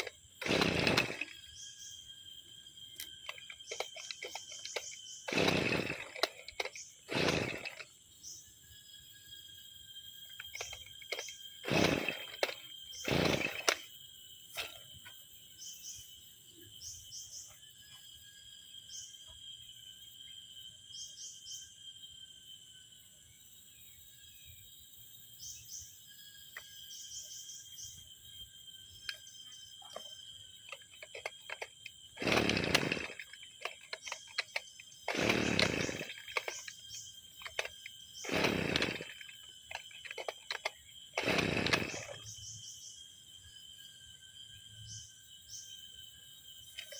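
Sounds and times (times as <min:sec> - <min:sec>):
brushcutter engine pull-starting: 0:00.0 - 0:01.7, 0:03.0 - 0:08.0, 0:10.3 - 0:13.9, 0:29.0 - 0:42.5
high insect-like buzzing: 0:26.9 - 0:45.8.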